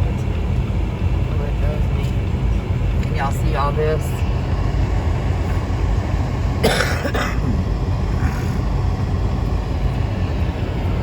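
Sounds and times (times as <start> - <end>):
car driving heard from inside: 0.0 - 11.0
person coughing: 6.6 - 7.6.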